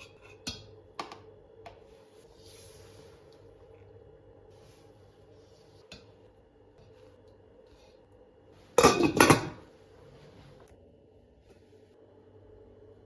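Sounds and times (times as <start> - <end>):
dishes and cutlery clattering: 8.8 - 9.6.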